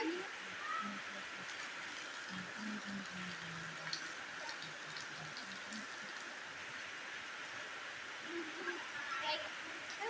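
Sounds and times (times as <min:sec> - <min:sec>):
rain hiss: 0:00.0 - 0:10.0
drips ticking: 0:01.5 - 0:06.2.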